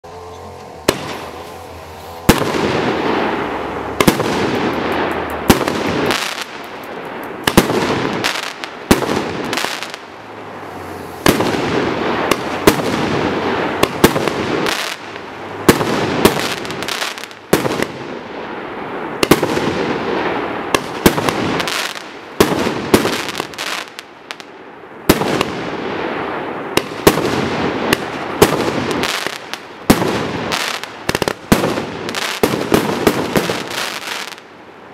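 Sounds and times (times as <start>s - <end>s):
fireworks aerial bursts: 0.0s - 34.9s
fireworks launch bangs: 0.4s - 10.1s, 11.0s - 18.2s, 19.1s - 34.5s.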